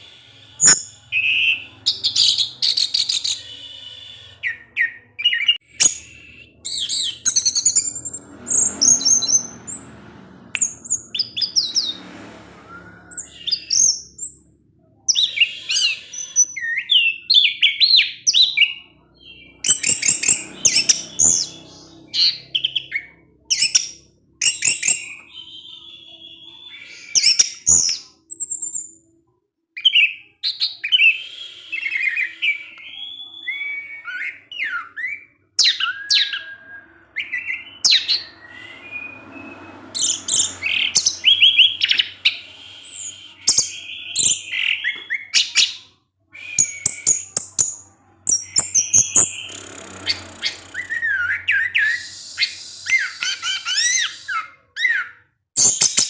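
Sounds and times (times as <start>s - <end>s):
thrush singing: 35.7s - 45.3s.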